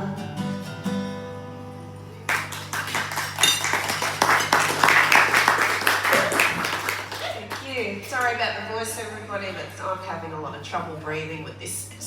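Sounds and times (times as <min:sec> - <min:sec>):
audience applause: 0:02.3 - 0:07.6.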